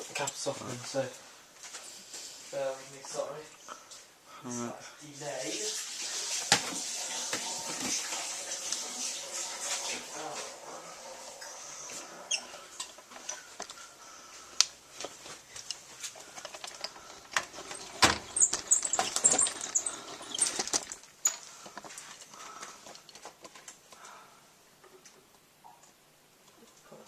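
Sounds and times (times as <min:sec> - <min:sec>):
rustle and clatter: 0:15.0 - 0:24.0.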